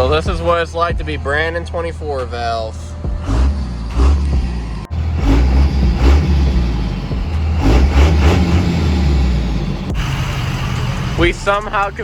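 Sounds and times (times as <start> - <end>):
diesel truck engine revving: 0.0 - 0.6, 2.7 - 12.0.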